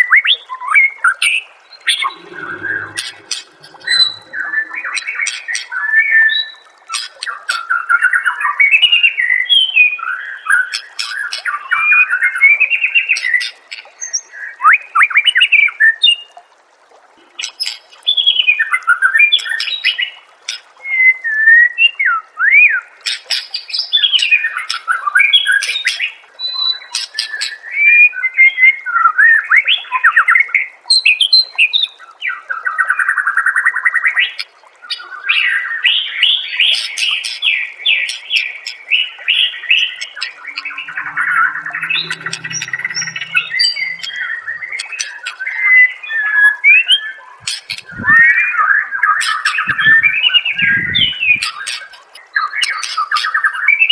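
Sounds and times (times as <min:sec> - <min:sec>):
songbird singing whistled trills: 0:01.7 - 0:16.2, 0:34.2 - 0:53.9.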